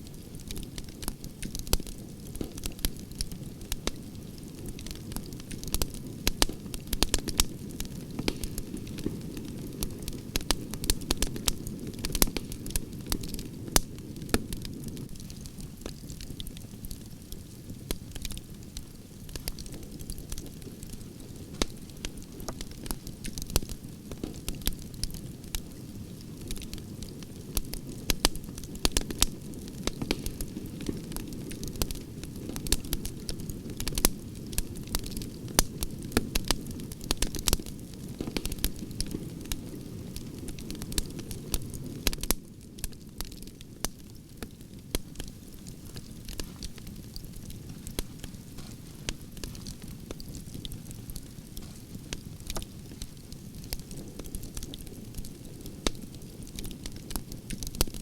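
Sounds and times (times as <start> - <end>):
logs crackling and popping: 0.0 - 58.0.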